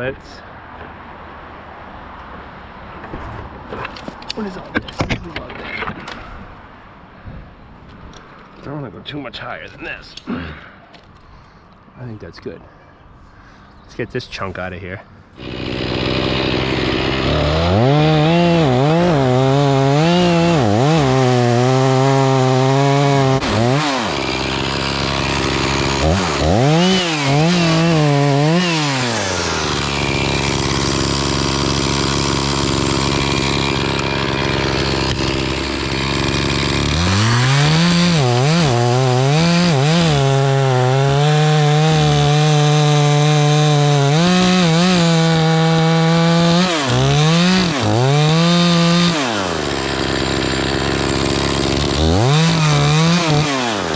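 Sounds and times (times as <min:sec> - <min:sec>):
chainsaw cutting wood: 0:15.4 - 0:53.9.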